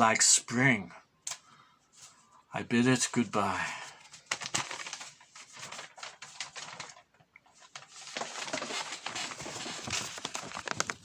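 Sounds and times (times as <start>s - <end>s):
clicking and rustling: 8.2s - 11.0s.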